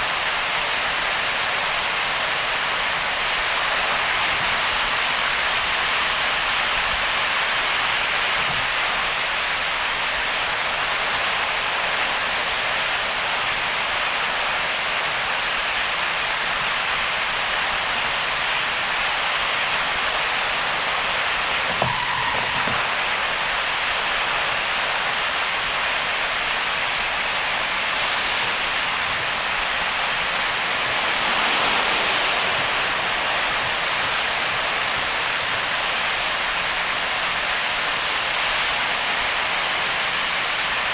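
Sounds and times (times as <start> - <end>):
rain and tyre spray hiss: 0.0 - 40.9
short knock: 21.7 - 22.9.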